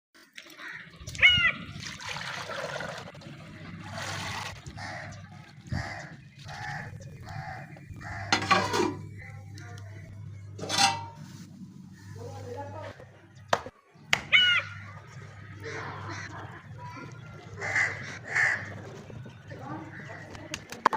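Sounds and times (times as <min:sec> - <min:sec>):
crows cawing: 0:00.4 - 0:01.7, 0:04.6 - 0:08.9, 0:14.3 - 0:20.4
birds calling: 0:00.4 - 0:20.9
low steady hum: 0:03.2 - 0:13.6.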